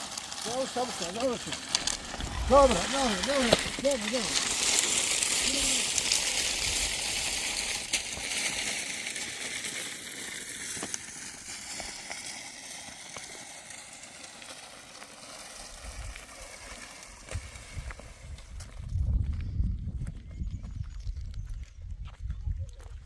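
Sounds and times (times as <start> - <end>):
steady rushing hiss: 0.0 - 17.8.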